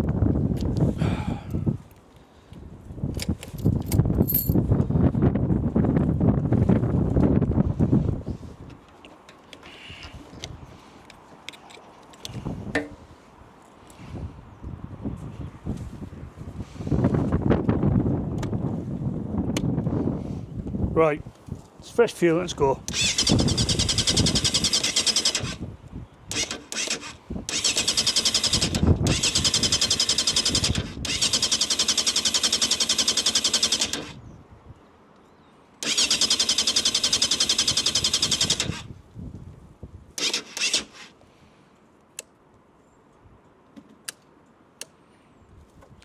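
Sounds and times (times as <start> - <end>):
motorcycle starter cranking: 22.9 - 25.6, 26.3 - 34.2, 35.8 - 38.9, 40.2 - 41.1.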